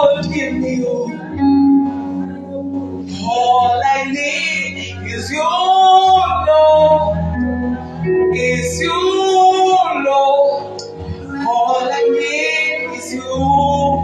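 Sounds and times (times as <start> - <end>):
instrumental backing: 0.0 - 14.0
man and woman singing: 3.1 - 7.2, 8.3 - 14.0.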